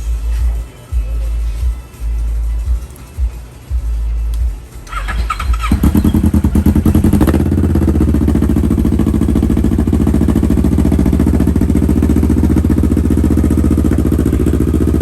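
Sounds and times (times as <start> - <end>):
small engine starting and idling: 4.9 - 15.0.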